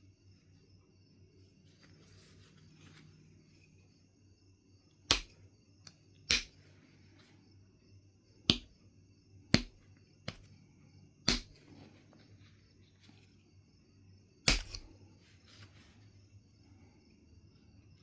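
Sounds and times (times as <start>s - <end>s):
stone tool striking flint: 5.0s - 6.7s, 8.4s - 8.8s, 9.5s - 10.5s, 11.2s - 11.8s, 14.4s - 15.0s.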